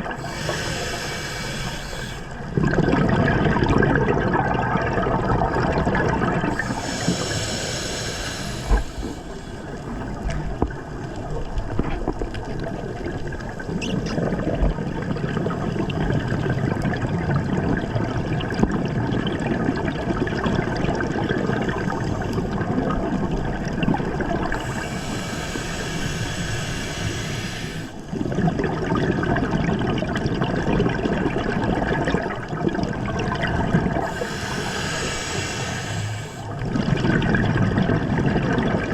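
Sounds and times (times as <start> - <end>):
underwater regulator bubbling: 0.0 - 38.9
bright underwater hissing: 0.1 - 2.4, 6.4 - 9.9, 24.4 - 28.0, 33.2 - 36.5.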